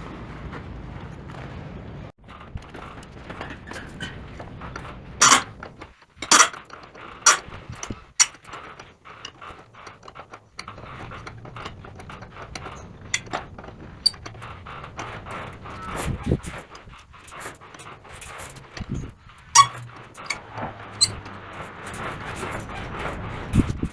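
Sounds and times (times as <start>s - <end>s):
metal tools clinking: 5.2s - 5.5s, 6.2s - 6.7s, 7.3s - 9.4s, 12.6s - 14.4s, 19.6s - 20.4s, 21.0s - 22.7s.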